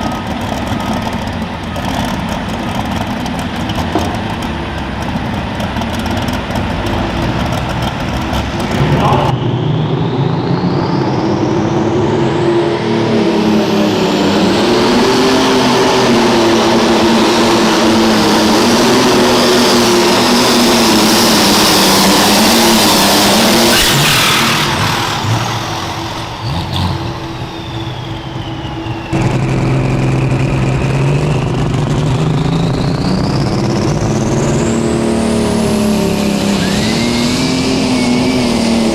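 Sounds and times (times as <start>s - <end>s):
tractor engine at full throttle: 0.0s - 38.9s
turbo whine: 8.4s - 38.9s.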